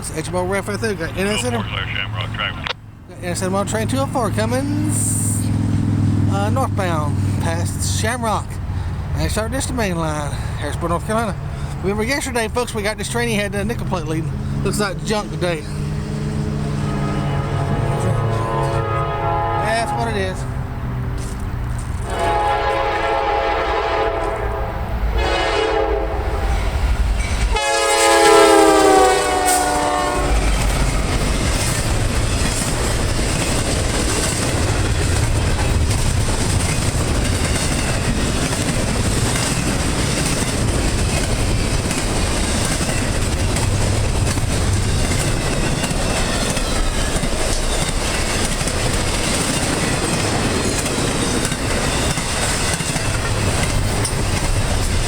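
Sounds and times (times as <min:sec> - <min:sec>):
locomotive air horn blasts: 0:16.8 - 0:20.5, 0:22.0 - 0:26.5, 0:27.5 - 0:30.4
train wheels clattering over rail joints: 0:21.1 - 0:22.4, 0:29.4 - 0:55.0.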